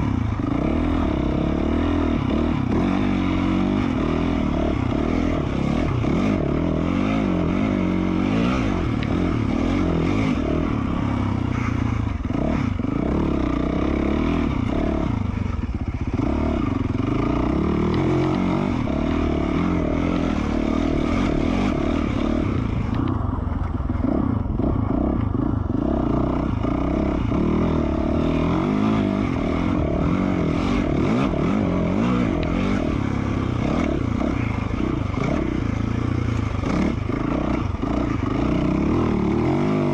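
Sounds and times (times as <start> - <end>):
dirt bike engine revving: 0.0 - 23.1, 23.9 - 39.9.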